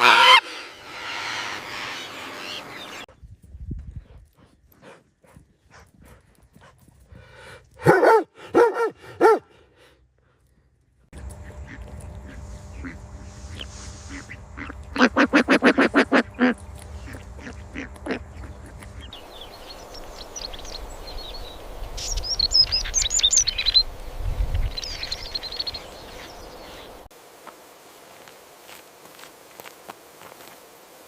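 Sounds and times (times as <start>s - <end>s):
loud quack-like bird calls: 0.0s - 2.0s, 11.4s - 18.8s
small birds chirping: 0.0s - 5.8s, 10.5s - 27.1s.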